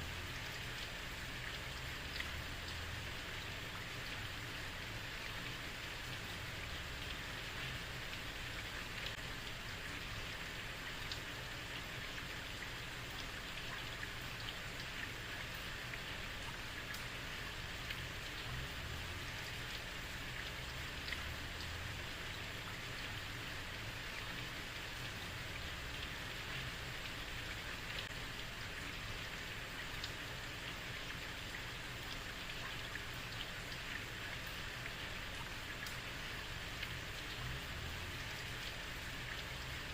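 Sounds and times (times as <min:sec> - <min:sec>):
heavy rain on a street: 0:00.0 - 0:39.9
rain drop ticks: 0:00.0 - 0:39.9.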